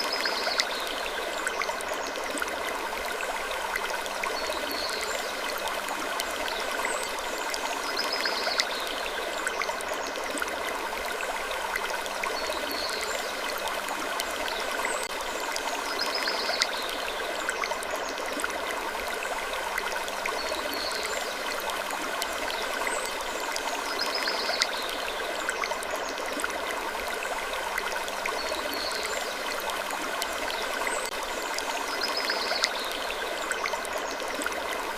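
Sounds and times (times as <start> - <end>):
stream-like rushing: 0.0 - 34.9.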